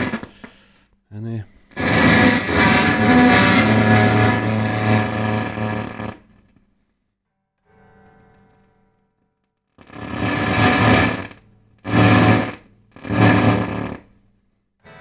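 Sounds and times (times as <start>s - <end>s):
heavily distorted electric guitar: 0.0s - 0.7s, 1.6s - 6.5s, 9.8s - 14.1s.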